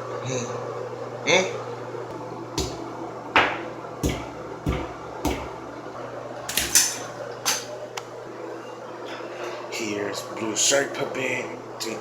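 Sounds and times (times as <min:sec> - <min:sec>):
steady low hum: 0:00.0 - 0:12.0
sharp knocks: 0:02.6 - 0:02.8, 0:03.4 - 0:05.6.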